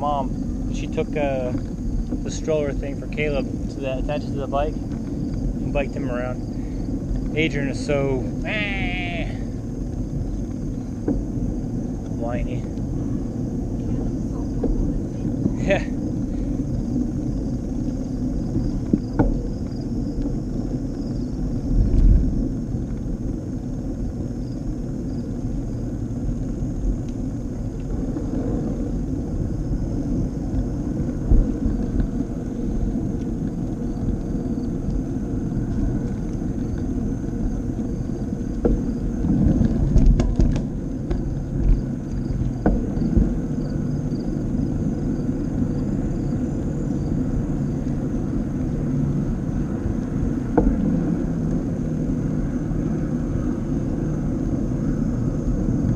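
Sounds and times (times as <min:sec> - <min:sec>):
bicycle tyres rolling on path: 0:00.0 - 0:55.9
wind buffeting microphone: 0:00.0 - 0:55.9
bike knocks and bumps: 0:38.4 - 0:44.4.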